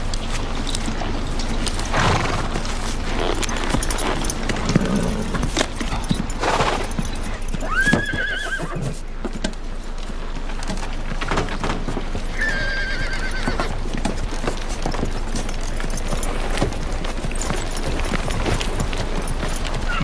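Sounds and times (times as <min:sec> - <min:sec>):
hooves clip-clopping: 0:00.0 - 0:20.0
horses whinnying: 0:01.9 - 0:09.1, 0:12.3 - 0:13.9, 0:17.4 - 0:20.0.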